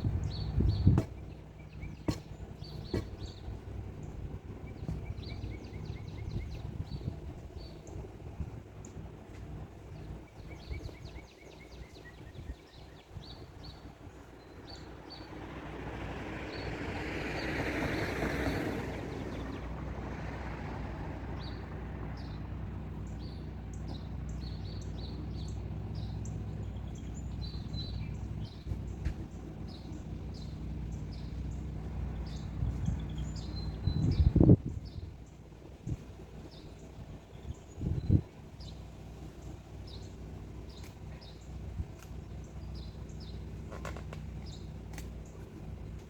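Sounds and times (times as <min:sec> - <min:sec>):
steady low hum: 0:00.0 - 0:15.4
small birds chirping: 0:00.0 - 0:46.0.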